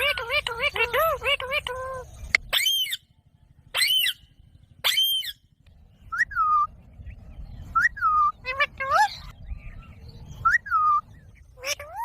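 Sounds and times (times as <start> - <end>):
parrot calling: 0.0 - 3.1, 3.7 - 5.5, 7.8 - 9.4, 10.4 - 12.0.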